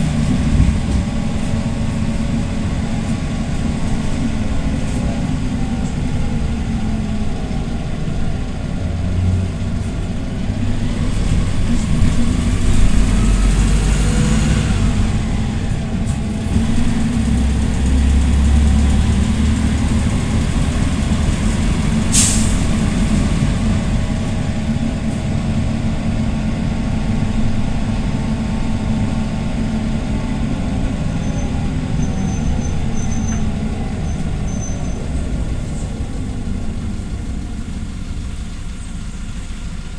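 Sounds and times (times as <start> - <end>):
bus engine running: 0.0 - 39.9
compressed air hiss: 22.1 - 22.8.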